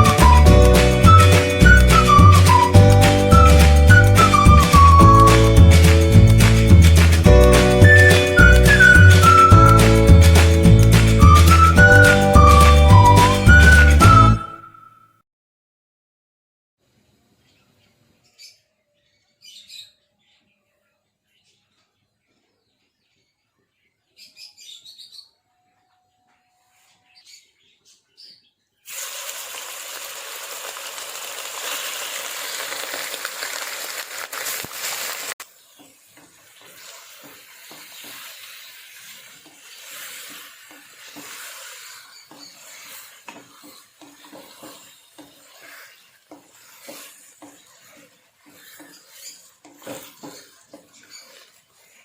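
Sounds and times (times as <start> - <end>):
loud frying hiss: 0.0 - 14.3, 28.9 - 48.8
stirring in a pan: 28.9 - 52.0.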